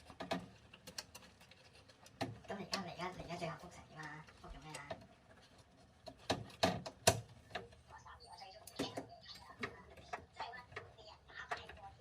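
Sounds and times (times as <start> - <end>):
sharp clicks and taps of parts: 6.0 - 7.8.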